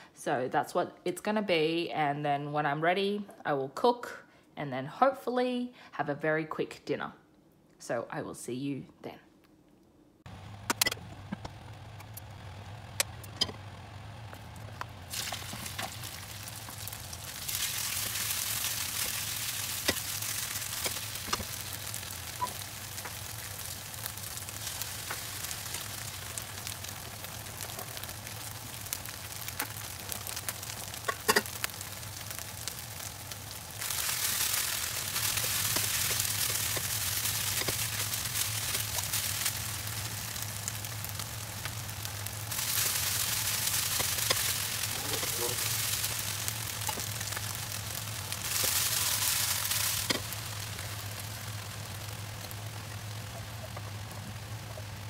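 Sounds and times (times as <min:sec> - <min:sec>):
low steady hum: 0:00.0 - 0:55.0
food sizzling in oil: 0:15.0 - 0:55.0.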